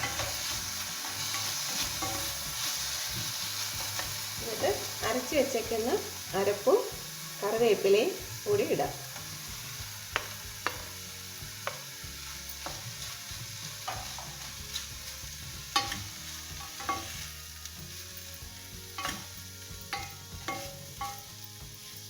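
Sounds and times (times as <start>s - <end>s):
spoon stirring and scraping: 0.0s - 5.0s, 9.2s - 18.3s, 18.9s - 22.0s
low sizzle: 0.0s - 22.0s
spoon knocking against pan: 10.1s - 11.0s, 11.6s - 11.9s, 15.7s - 17.2s, 19.0s - 19.3s, 19.9s - 21.3s.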